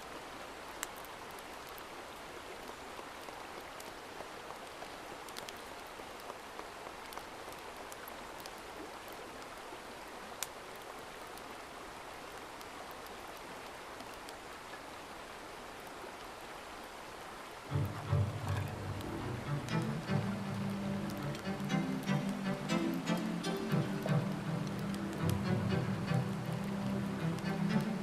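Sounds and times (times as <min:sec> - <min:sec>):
steady water noise: 0:00.0 - 0:28.0
light ticks: 0:00.8 - 0:01.9, 0:02.6 - 0:09.6, 0:10.4 - 0:11.5, 0:20.6 - 0:25.5.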